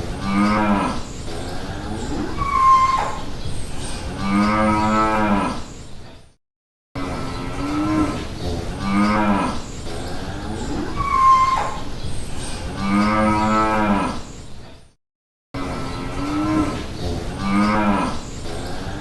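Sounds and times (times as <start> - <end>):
cattle mooing: 0.2 - 3.2, 4.1 - 5.6, 7.0 - 11.8, 12.7 - 14.2, 15.6 - 19.0.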